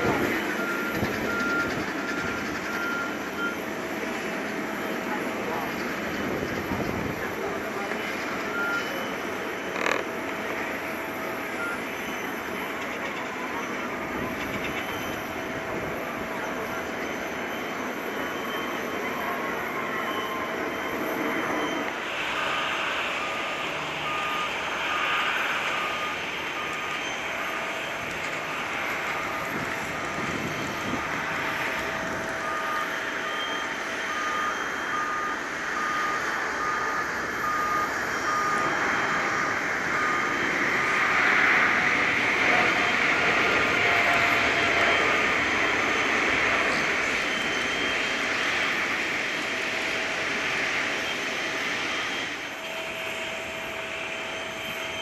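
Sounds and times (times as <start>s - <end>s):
short beeps: 0.0s - 3.8s, 8.4s - 21.9s, 23.2s - 38.8s
jet engines at takeoff power: 0.0s - 55.0s.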